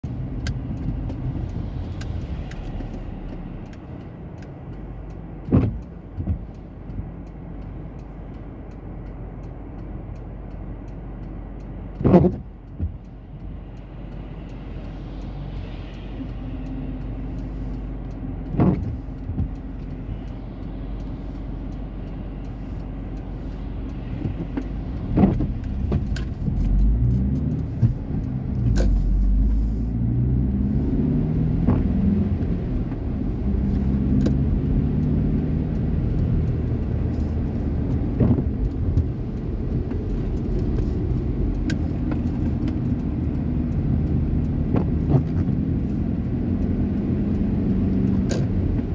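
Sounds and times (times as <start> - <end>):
car engine: 0.0 - 48.9
road noise: 0.0 - 48.9
sharp knocks and clicks: 12.0 - 13.1.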